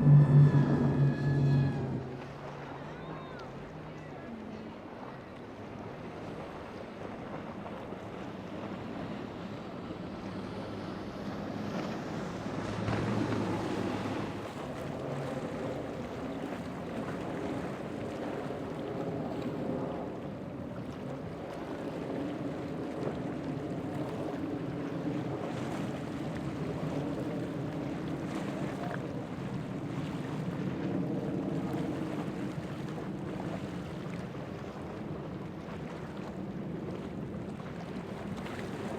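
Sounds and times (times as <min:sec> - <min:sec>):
wind on microphone: 0:00.0 - 0:02.3
boat engines running: 0:00.0 - 0:38.9
waves: 0:00.0 - 0:38.9.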